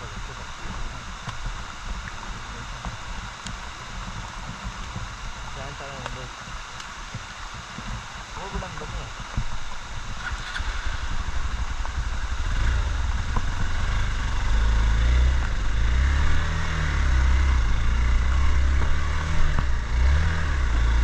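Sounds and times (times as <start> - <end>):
motorcycle engine revving: 9.8 - 21.0.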